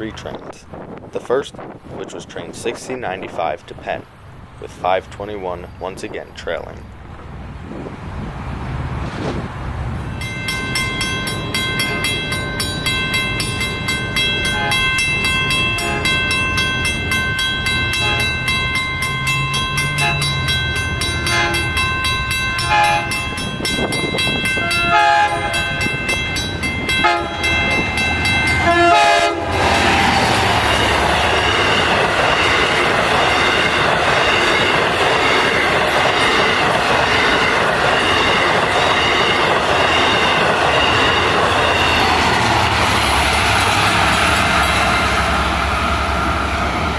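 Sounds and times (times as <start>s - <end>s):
train passing rumble: 0.0s - 46.9s
high ringing tone: 10.1s - 29.2s
train horn blasts: 14.4s - 15.1s, 15.7s - 16.4s, 17.9s - 18.5s, 19.8s - 20.5s, 21.2s - 21.9s, 22.6s - 23.4s, 24.4s - 26.1s, 26.9s - 30.0s
wheels squealing on rail: 17.4s - 46.9s.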